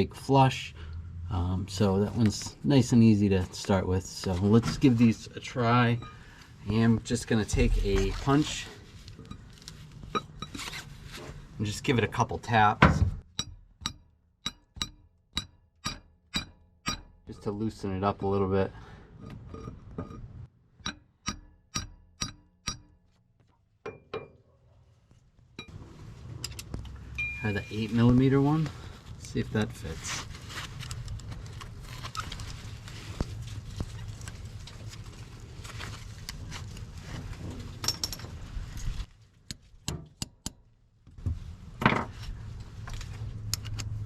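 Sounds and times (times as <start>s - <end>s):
hammer tapping metal punch: 13.3s - 17.2s, 20.8s - 23.1s
metal tools clinking: 37.8s - 38.4s.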